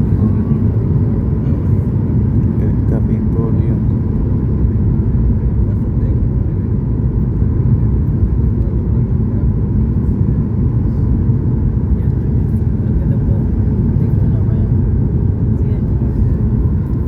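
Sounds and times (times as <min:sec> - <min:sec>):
airplane cabin engine rush: 0:00.0 - 0:17.0.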